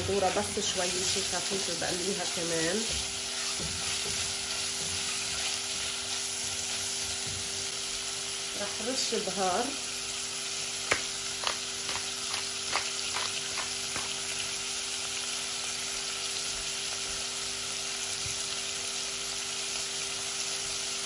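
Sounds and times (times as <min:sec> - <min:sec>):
food sizzling in a pot: 0:00.0 - 0:21.0
pepper grinder clicks: 0:10.9 - 0:14.2.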